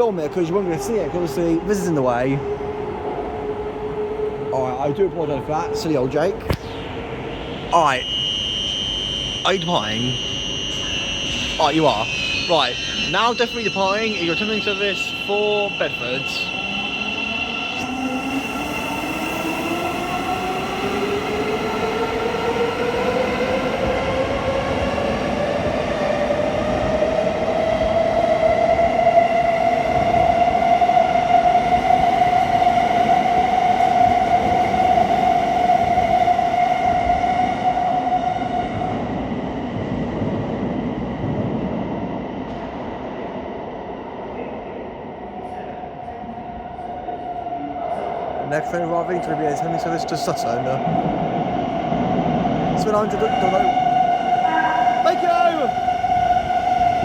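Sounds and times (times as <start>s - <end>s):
electric train motor whine: 6.7s - 37.9s.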